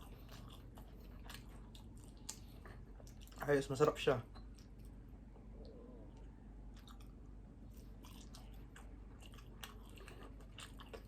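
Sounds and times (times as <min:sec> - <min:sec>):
person chewing food: 0:00.0 - 0:03.5, 0:04.2 - 0:11.0.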